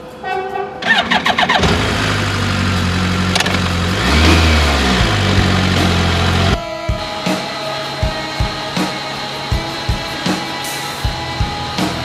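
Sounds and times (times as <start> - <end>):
motorcycle engine running: 0.8 - 7.1.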